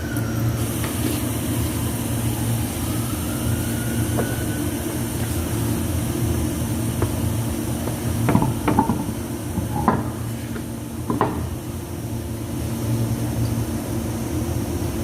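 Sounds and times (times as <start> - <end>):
constant hum: 0.0 - 15.0
low mechanical rumble: 0.0 - 15.0.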